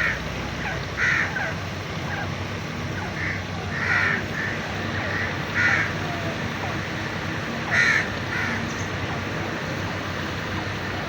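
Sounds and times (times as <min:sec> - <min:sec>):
francolin harsh calls: 0:02.9 - 0:09.0.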